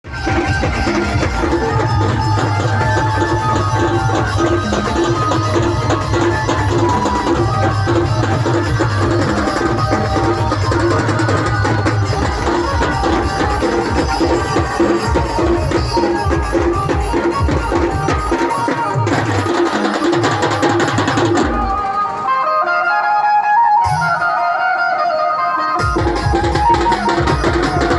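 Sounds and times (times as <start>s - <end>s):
band melody: 0.0s - 27.9s
fast dense drumming: 0.1s - 21.8s.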